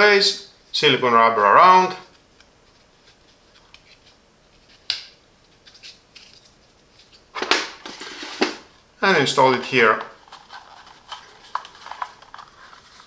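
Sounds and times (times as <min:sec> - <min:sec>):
plastic clatter: 0:10.1 - 0:13.0.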